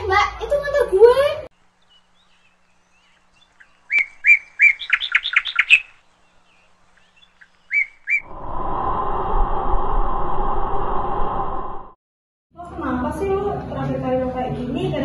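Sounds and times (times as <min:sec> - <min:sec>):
small bird chirping: 0:01.6 - 0:08.3
steady rushing noise with hum: 0:08.2 - 0:12.0.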